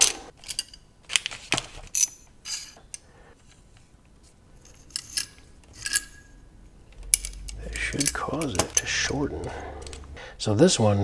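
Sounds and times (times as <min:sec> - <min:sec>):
metallic clinks of steel parts: 0:00.0 - 0:03.9, 0:04.6 - 0:10.2.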